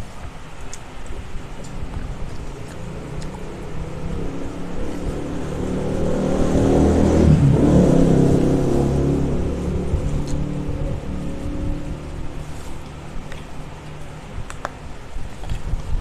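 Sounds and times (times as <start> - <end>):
vehicle engine passing by: 2.5 - 13.2.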